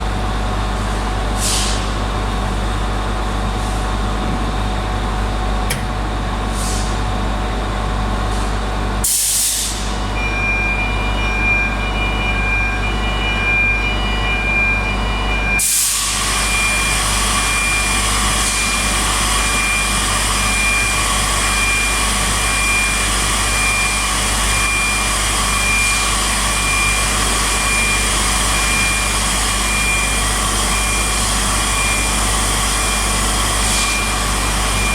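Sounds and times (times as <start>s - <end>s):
machinery humming: 0.0s - 9.0s, 10.0s - 34.9s
high warning beep: 10.2s - 15.7s, 25.6s - 34.9s.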